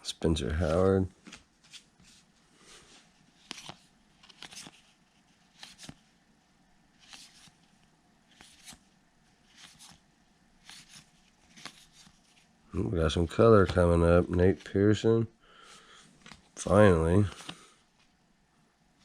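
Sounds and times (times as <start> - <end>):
cards sliding swishes: 0.6 - 6.1, 6.9 - 10.0, 10.6 - 12.5, 16.2 - 18.2.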